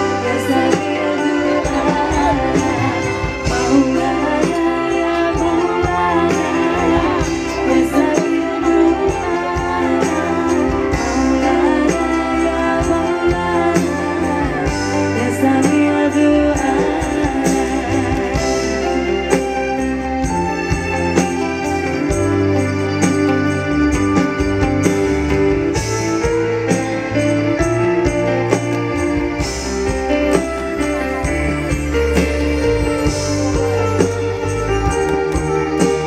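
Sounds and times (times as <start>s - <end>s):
woman singing: 0.0s - 23.6s
live band music: 0.0s - 36.0s.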